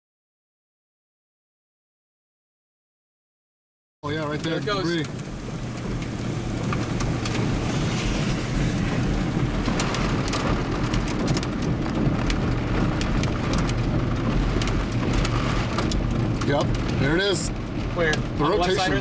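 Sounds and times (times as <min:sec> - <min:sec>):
sharp raindrop ticks: 0:04.0 - 0:18.9
low vehicle hum: 0:04.0 - 0:19.0
rain on vehicle roof: 0:04.0 - 0:19.0.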